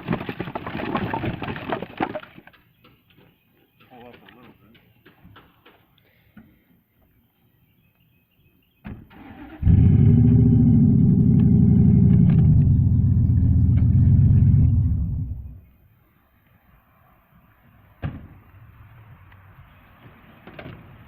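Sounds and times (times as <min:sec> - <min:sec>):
truck engine cranking: 0:09.1 - 0:15.5
truck engine running: 0:09.6 - 0:15.6.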